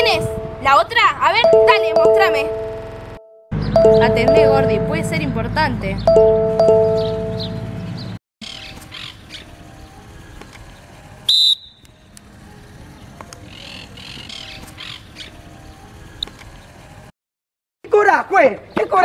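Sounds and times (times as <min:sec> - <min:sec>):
birds chirping: 0:03.5 - 0:09.5.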